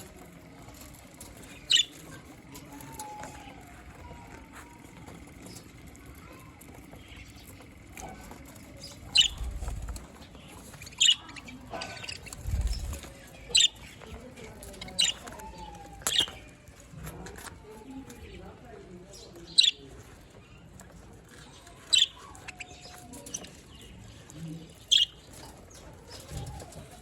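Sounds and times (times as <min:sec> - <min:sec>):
low rumbles: 0:00.0 - 0:14.6
soft warbling chatter: 0:00.0 - 0:27.0.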